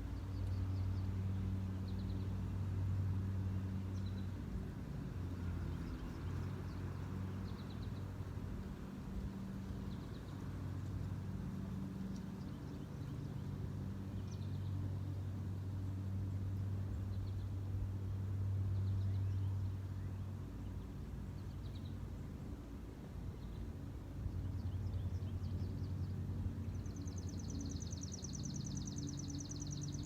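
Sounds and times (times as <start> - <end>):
small birds chirping: 0.0 - 2.8, 3.5 - 15.6, 18.6 - 22.2, 23.3 - 30.0
low mechanical hum: 0.0 - 30.0.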